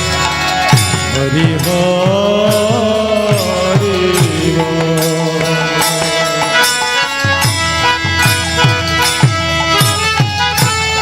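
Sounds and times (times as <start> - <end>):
hand drum strokes: 0.0 - 11.0
person singing: 1.1 - 7.2.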